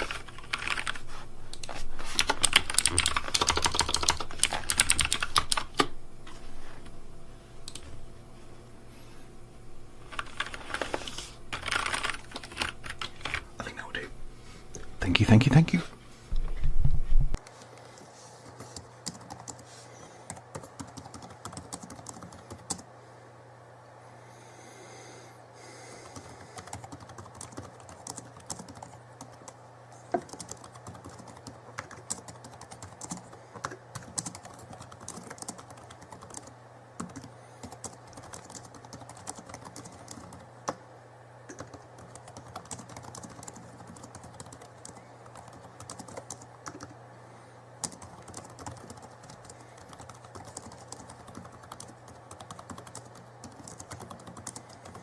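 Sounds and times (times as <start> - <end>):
typing on computer keyboard: 0.0 - 5.9, 10.1 - 13.4, 18.8 - 19.6, 20.3 - 22.9, 26.1 - 29.6, 30.2 - 40.4, 41.5 - 46.9, 47.8 - 55.0
low steady hum: 0.0 - 55.0.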